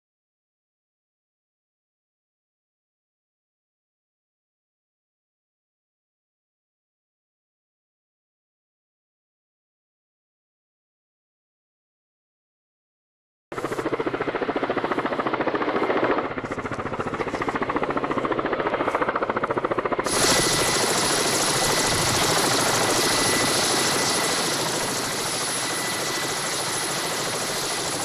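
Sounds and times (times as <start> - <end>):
helicopter rotor chopping: 13.6 - 28.0
steady high whine: 13.6 - 28.0.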